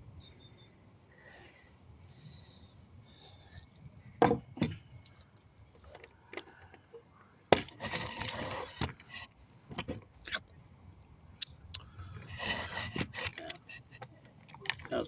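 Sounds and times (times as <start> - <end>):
small metallic clinks: 3.4 - 6.8
nail rasping scrape: 12.3 - 14.0.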